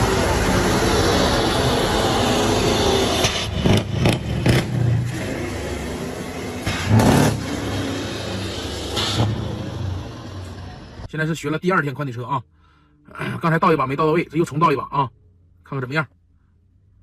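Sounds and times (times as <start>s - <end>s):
vehicle engine running hard: 0.0s - 11.1s.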